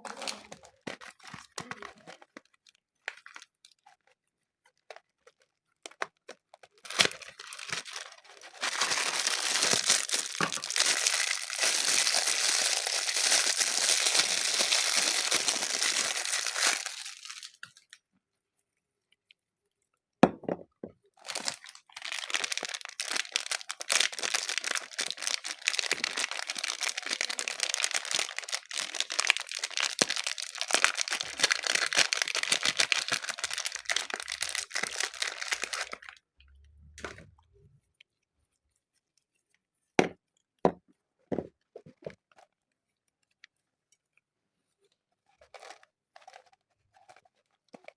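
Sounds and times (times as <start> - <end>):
wrappers crinkling and tearing: 0.0 - 18.0, 21.2 - 36.2, 45.1 - 47.9.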